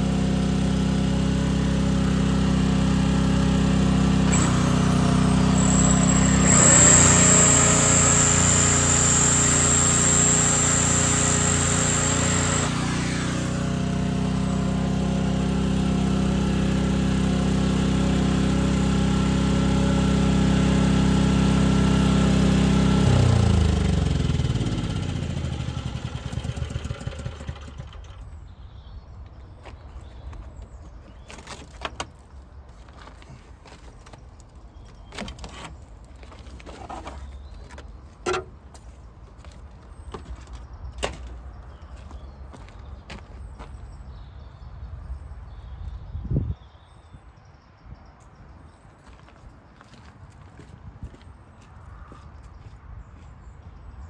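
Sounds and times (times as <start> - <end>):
engine running down: 0.0 - 28.5.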